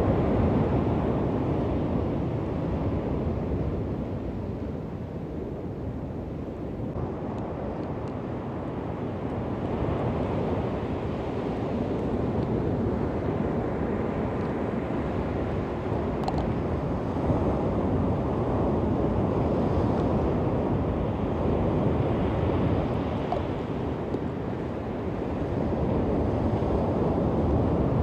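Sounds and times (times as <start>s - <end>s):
wind rumble on microphone: 0.0s - 28.0s
waves washing onto beach: 7.2s - 28.0s.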